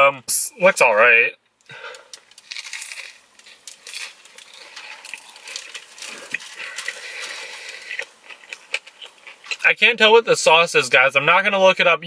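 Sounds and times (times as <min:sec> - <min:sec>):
crisp crackles of chewing: 0:01.8 - 0:09.7.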